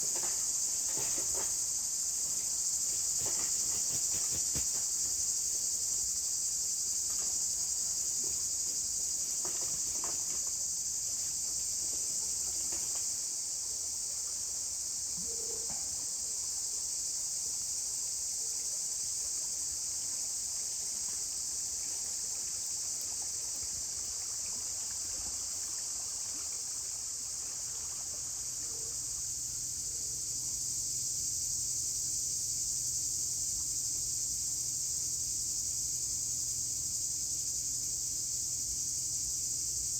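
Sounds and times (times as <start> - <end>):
insect chorus chirring: 0.0 - 39.9.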